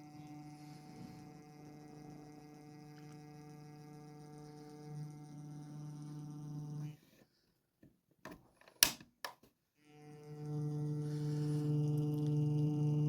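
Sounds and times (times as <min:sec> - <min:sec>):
model train motor humming: 0:00.0 - 0:06.9.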